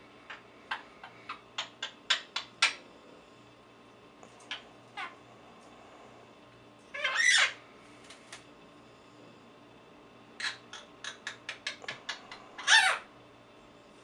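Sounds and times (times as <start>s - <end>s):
parrot squawking: 4.5s - 5.2s, 6.9s - 7.6s, 10.4s - 13.1s.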